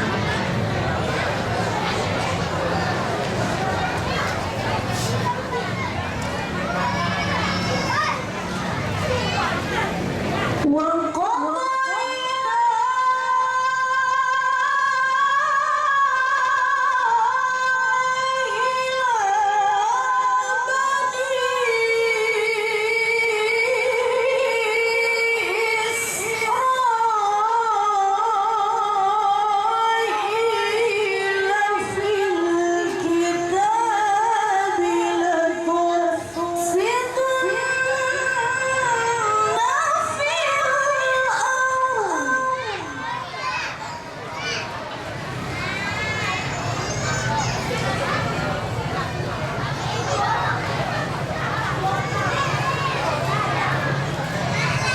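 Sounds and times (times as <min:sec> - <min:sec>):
woman reciting melodically: 0:10.6 - 0:43.6.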